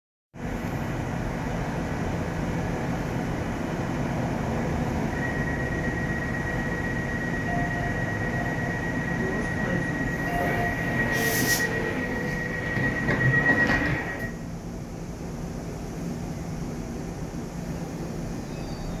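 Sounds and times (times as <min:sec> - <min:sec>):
train wheels rumbling on rail: 0:00.4 - 0:18.8
thin high tone: 0:05.2 - 0:12.6.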